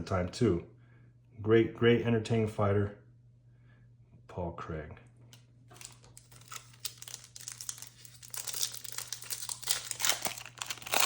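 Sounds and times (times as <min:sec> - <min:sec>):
foil wrapper crinkling and tearing: 0:05.7 - 0:11.0.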